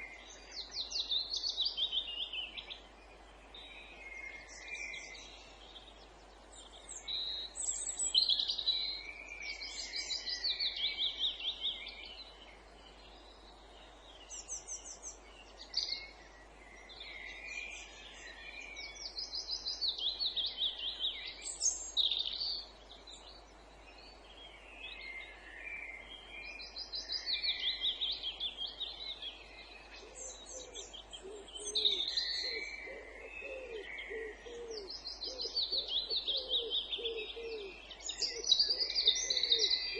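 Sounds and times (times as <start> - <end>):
songbirds singing: 0.0 - 39.9
low cooing or hooting: 30.6 - 37.7.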